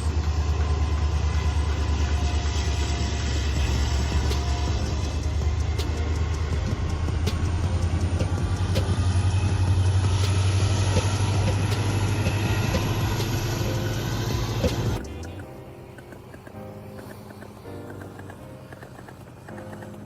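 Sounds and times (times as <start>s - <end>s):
model train rumbling: 0.0s - 15.0s
sharp clicks: 14.6s - 20.0s.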